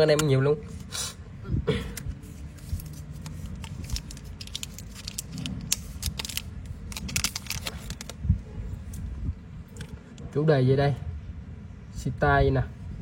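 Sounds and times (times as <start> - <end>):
low background rumble: 1.2 - 10.4.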